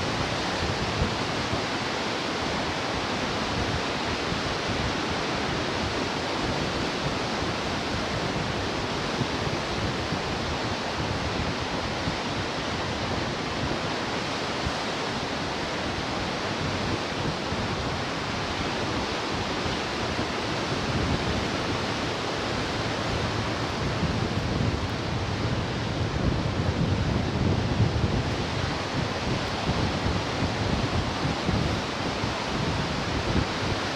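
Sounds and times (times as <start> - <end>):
ocean waves breaking: 15.4 - 26.3.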